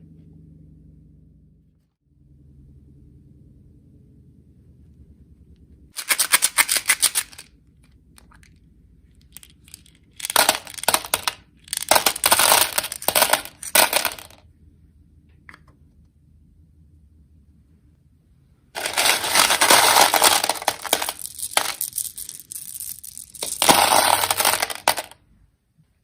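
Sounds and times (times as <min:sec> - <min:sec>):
candies clattering into container: 0:06.0 - 0:07.5, 0:09.2 - 0:14.4, 0:18.8 - 0:25.2.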